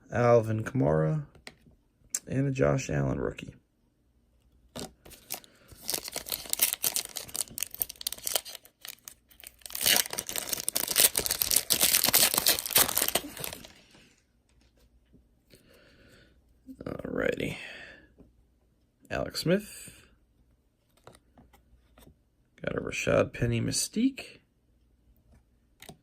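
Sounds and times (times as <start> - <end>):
foil wrapper tearing and crinkling: 4.8 - 14.0.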